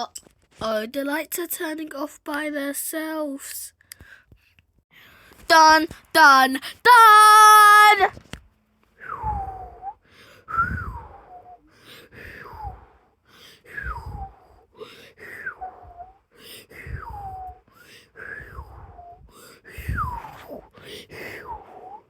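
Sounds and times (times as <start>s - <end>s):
child breathing: 4.9s - 7.0s, 9.2s - 22.0s.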